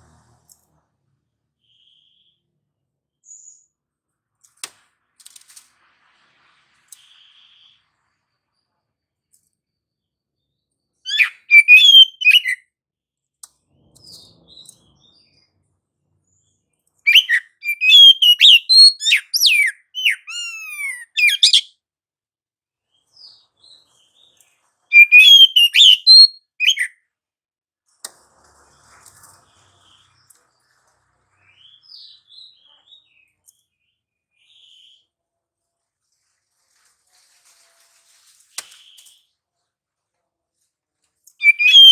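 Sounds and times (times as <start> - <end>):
bird singing whistled phrases: 11.1 - 12.6, 17.1 - 21.7, 24.9 - 26.9, 41.4 - 41.9
soft bird notes: 41.4 - 41.9.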